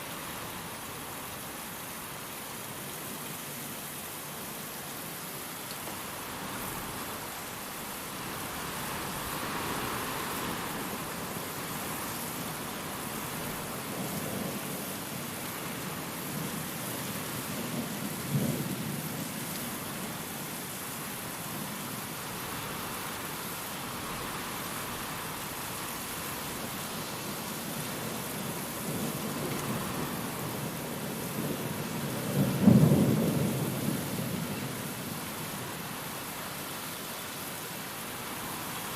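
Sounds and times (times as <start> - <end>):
heavy rain: 0.0 - 38.9
loud thunderclap: 32.3 - 34.2.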